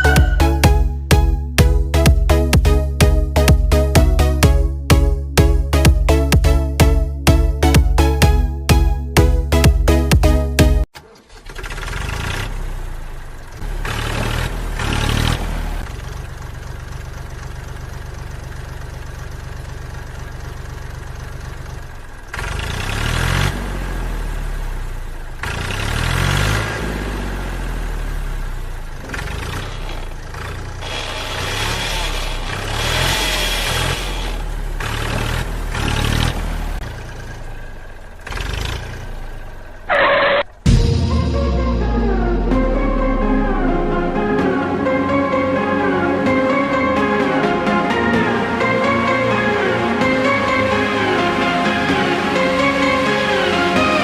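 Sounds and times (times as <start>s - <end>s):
small engine revving: 10.9s - 17.6s, 21.4s - 40.7s.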